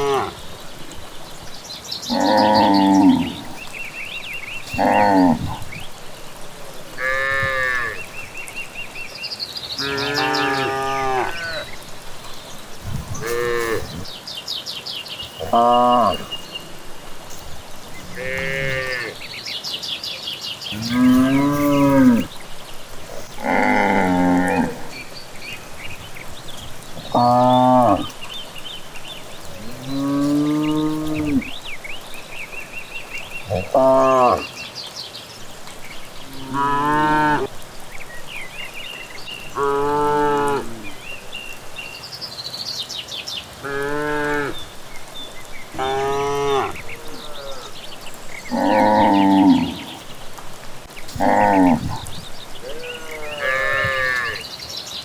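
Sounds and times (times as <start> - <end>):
cattle mooing: 0.0 - 0.4, 2.1 - 3.7, 4.7 - 5.7, 7.0 - 8.1, 9.8 - 11.7, 13.0 - 14.0, 15.4 - 16.4, 18.0 - 19.2, 20.7 - 22.3, 23.1 - 25.1, 27.0 - 28.2, 29.5 - 31.5, 33.5 - 34.5, 39.6 - 41.0, 45.7 - 47.8, 48.5 - 49.9, 51.1 - 54.4
birds chirping faintly: 0.0 - 55.0.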